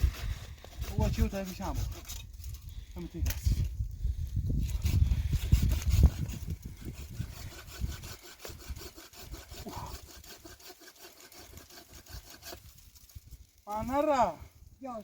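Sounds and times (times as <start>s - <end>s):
hand saw cutting wood: 0.0s - 2.6s, 4.6s - 13.2s.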